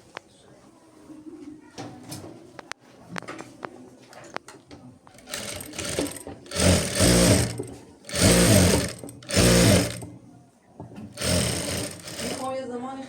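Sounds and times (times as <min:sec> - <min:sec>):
electric sewing machine stitching: 0:05.2 - 0:10.2, 0:11.1 - 0:12.6.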